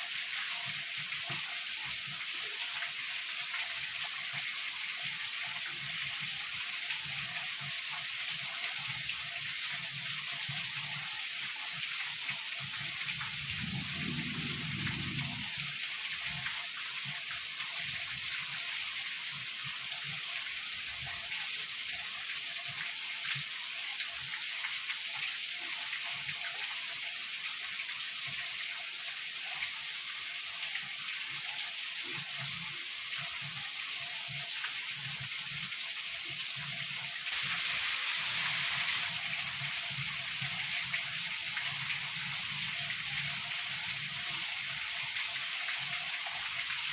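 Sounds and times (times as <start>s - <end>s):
heavy rain falling: 13.3s - 16.4s, 37.3s - 43.2s
distant thunder rumble: 13.4s - 15.6s.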